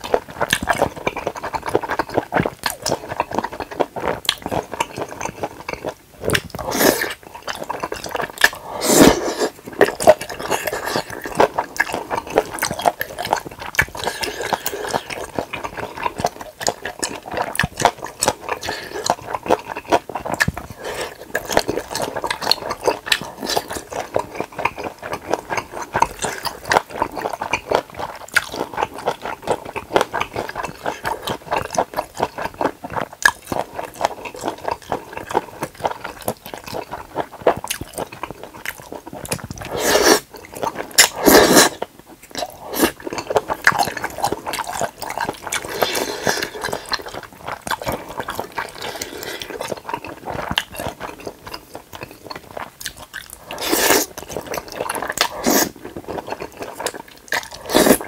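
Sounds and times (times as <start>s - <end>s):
person chewing wet clicks: 0.0s - 58.0s
person slurping noodles: 6.3s - 7.2s, 8.5s - 11.6s, 39.7s - 40.3s, 40.9s - 41.8s, 45.6s - 47.2s, 48.6s - 49.7s, 53.5s - 55.8s, 57.4s - 58.0s.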